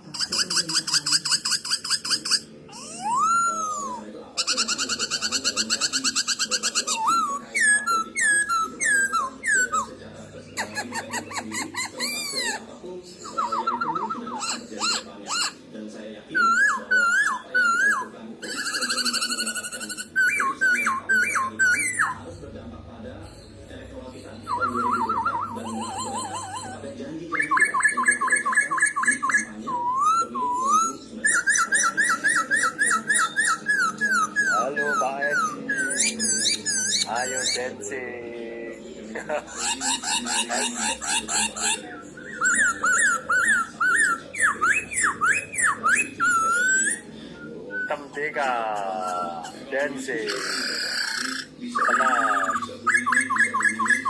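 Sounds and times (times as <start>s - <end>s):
bird whistled notes: 24.4s - 26.8s
bird singing whistled phrases: 24.4s - 37.6s.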